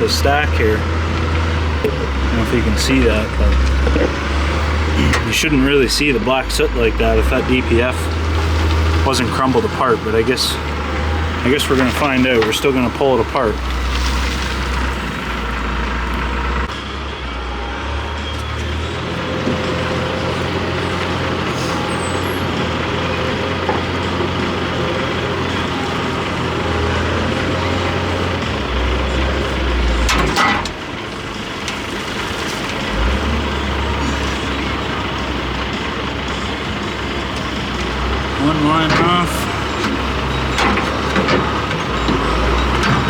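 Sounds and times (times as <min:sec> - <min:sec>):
engine droning: 0:00.0 - 0:43.0.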